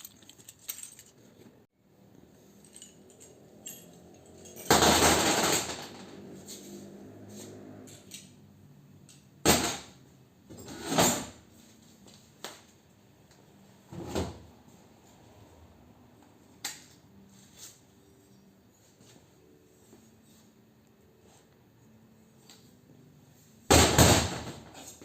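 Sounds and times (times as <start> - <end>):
metal parts knocking and clattering: 0.0 - 1.6, 2.5 - 6.0.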